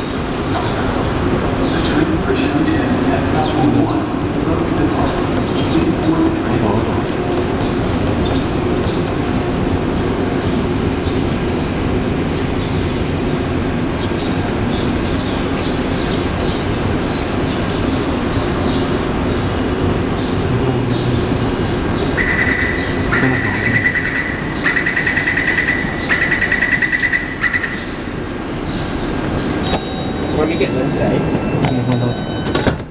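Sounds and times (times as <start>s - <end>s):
birds chirping: 0.0s - 32.8s
train humming at platform: 0.0s - 32.9s
door closing warning beeps: 29.6s - 32.9s.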